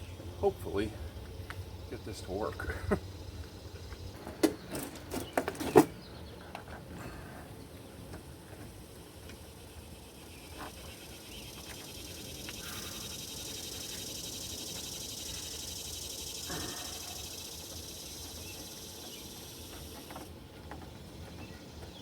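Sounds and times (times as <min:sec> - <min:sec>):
handling noises: 0:04.2 - 0:06.9
steady hiss: 0:08.2 - 0:20.3.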